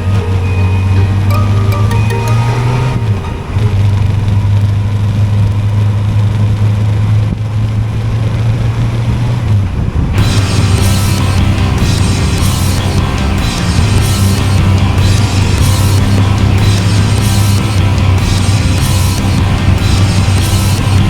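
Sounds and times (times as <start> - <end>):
loud rock music: 10.2 - 21.0.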